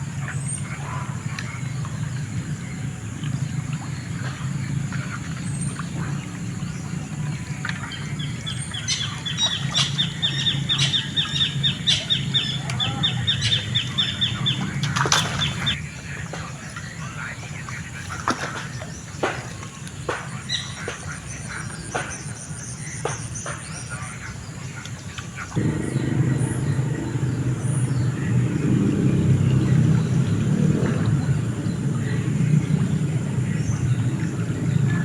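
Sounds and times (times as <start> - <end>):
bird chirping rapidly: 0.1 - 15.8
steady low rumble: 25.6 - 35.0.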